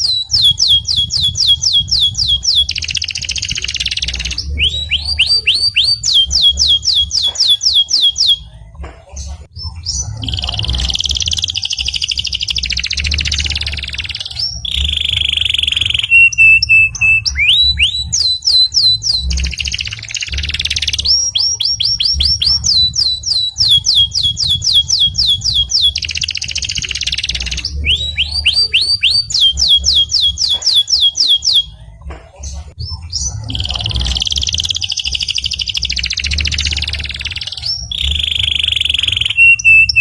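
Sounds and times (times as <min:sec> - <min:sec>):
canary singing: 0:00.0 - 0:40.0.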